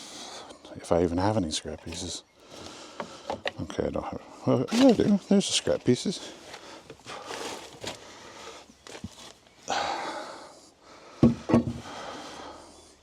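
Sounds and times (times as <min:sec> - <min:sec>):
wood scraping: 0:04.7 - 0:09.4
wood knocking on wood: 0:11.2 - 0:11.8.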